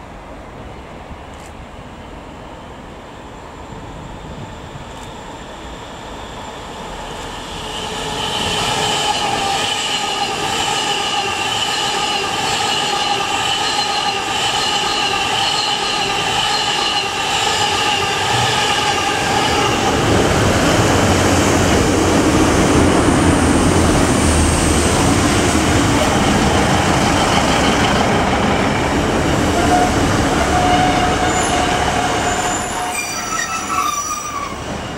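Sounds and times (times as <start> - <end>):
train wheels rumbling on rail: 0.0 - 34.9
train whine: 0.0 - 34.9
short squeal: 30.6 - 34.7.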